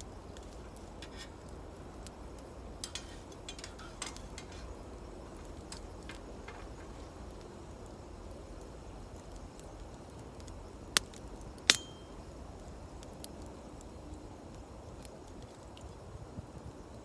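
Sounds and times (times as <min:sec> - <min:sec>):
low outdoor rumble: 0:00.0 - 0:13.0
campfire wood ticking: 0:00.0 - 0:17.0
sharp metallic clinks: 0:02.8 - 0:06.9, 0:11.7 - 0:12.2.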